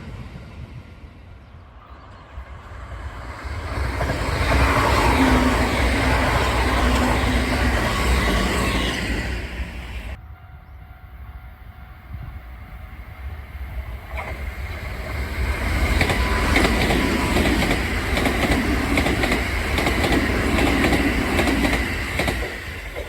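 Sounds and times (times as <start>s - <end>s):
electric train passing: 0.0s - 23.0s
train wheels clacking on rail joints: 14.0s - 23.0s.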